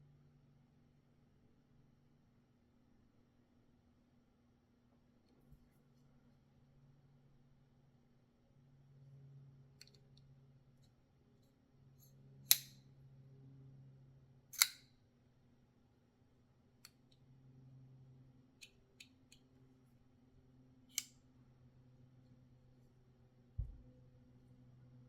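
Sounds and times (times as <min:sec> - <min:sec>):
knife snapping open and closed: 0:12.5 - 0:12.8, 0:14.6 - 0:14.9, 0:20.9 - 0:21.2.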